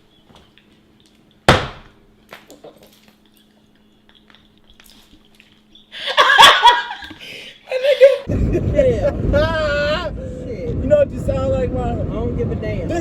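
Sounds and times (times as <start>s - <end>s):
loud sharp knock: 1.5s - 1.9s.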